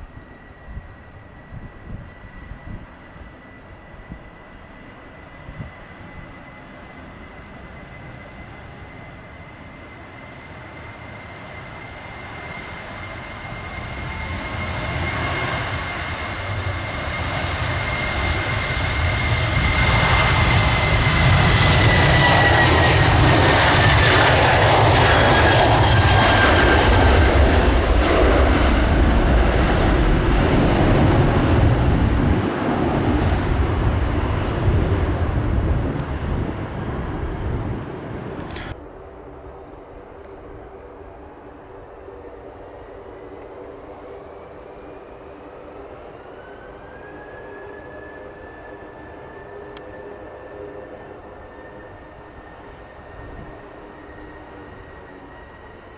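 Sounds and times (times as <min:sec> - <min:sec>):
jet engines passing by: 0:00.0 - 0:55.9.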